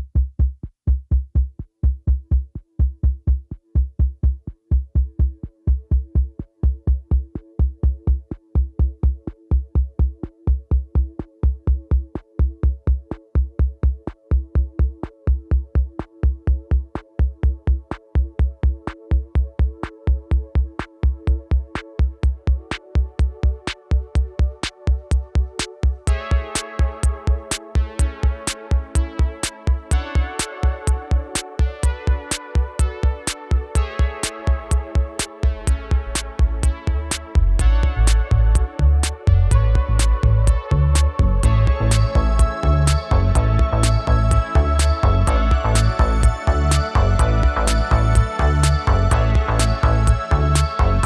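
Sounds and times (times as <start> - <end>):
programmed electronic beat: 0.0 - 51.0
synthesizer tone: 35.5 - 51.0.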